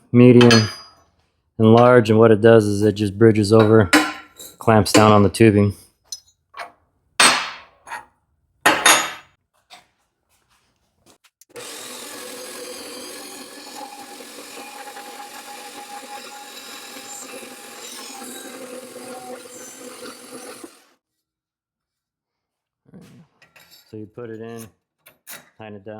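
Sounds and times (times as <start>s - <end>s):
sharp metal clank: 0.4s - 1.0s, 3.6s - 5.2s, 7.2s - 8.0s, 8.7s - 9.3s
rasping power tool: 5.0s - 5.2s, 11.5s - 21.0s.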